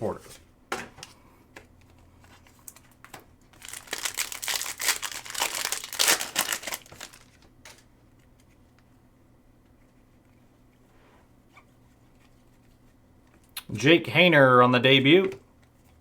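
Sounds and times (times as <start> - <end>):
plastic wrapper crinkling: 3.5 - 7.9.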